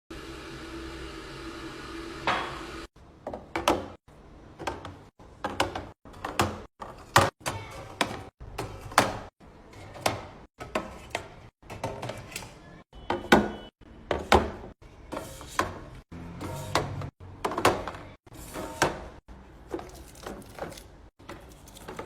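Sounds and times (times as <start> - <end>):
drawer sliding: 14.1 - 22.0.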